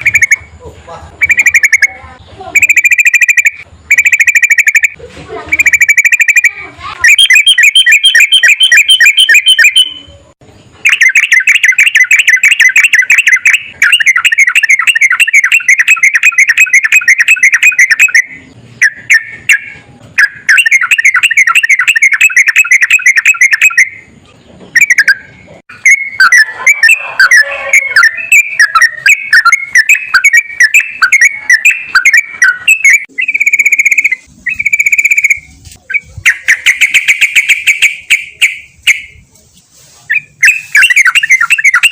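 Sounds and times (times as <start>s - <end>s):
bulbul singing rolling song: 0.0s - 41.9s.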